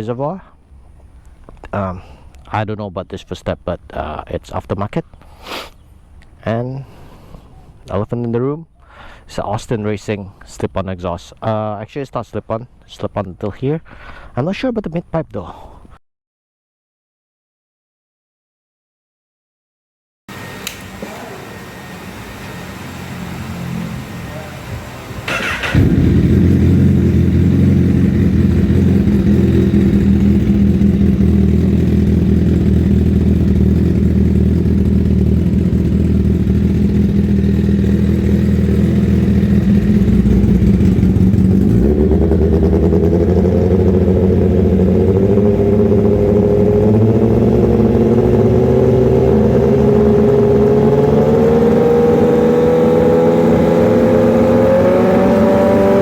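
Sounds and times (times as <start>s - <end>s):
motorcycle engine idling and revving: 21.9s - 56.0s.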